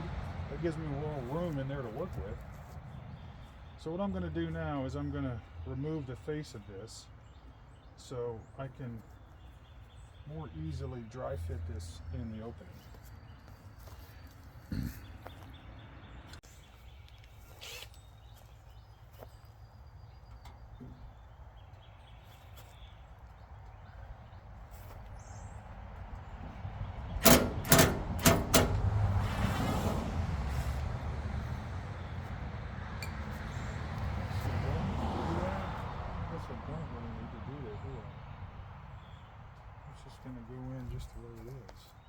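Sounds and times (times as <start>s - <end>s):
rustling and rumbling: 16.9s - 32.4s
sharp knocks: 27.2s - 29.2s.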